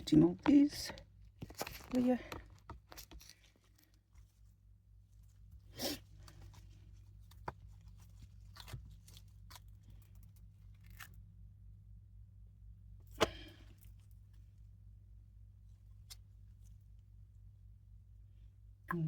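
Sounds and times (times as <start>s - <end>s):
silicone mold tearing peel: 6.2s - 11.3s.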